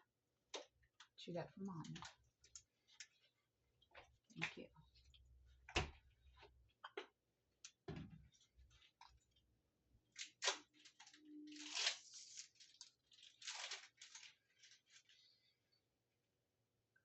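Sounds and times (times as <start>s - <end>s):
child chewing tablet: 6.2s - 7.8s.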